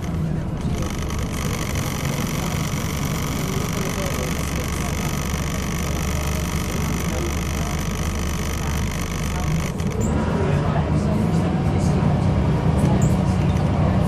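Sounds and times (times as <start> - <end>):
high-pitched grinding whine: 0.0 - 10.2
bus engine drone: 0.0 - 14.0.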